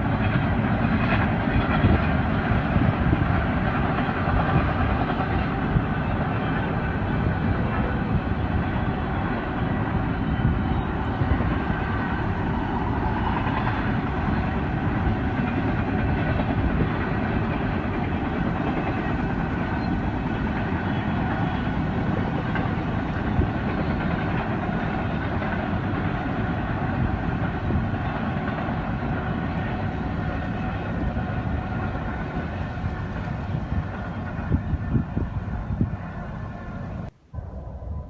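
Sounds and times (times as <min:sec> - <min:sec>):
freight train rumbling on rails: 0:00.0 - 0:38.0.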